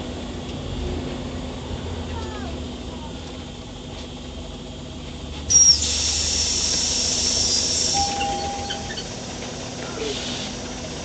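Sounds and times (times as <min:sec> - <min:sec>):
short high squeal: 0:05.5 - 0:06.0, 0:07.2 - 0:09.2
compressed air hiss: 0:05.5 - 0:09.0, 0:10.0 - 0:10.6
short steady tone: 0:07.9 - 0:09.1.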